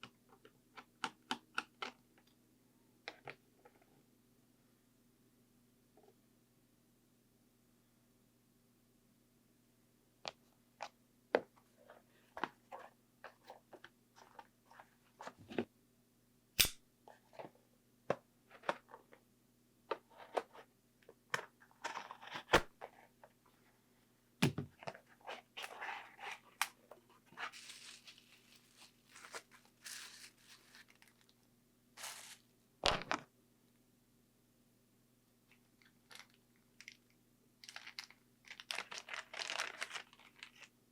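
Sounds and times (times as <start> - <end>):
faint steady hum: 0.0 - 40.9
rustling and scraping: 24.8 - 31.3, 32.0 - 32.4.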